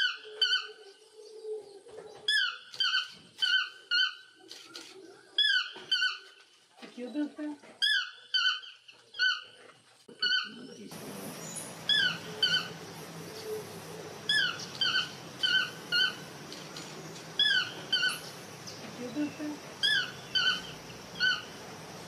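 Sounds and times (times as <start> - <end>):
steady background hiss: 8.6 - 22.0
squeaky bird calls: 11.4 - 12.8, 14.3 - 16.2, 17.4 - 18.3, 19.8 - 21.6.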